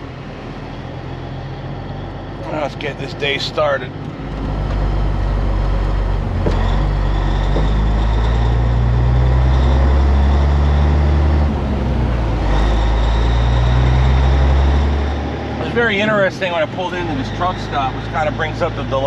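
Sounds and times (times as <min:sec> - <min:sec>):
truck diesel engine under load: 0:00.0 - 0:19.0.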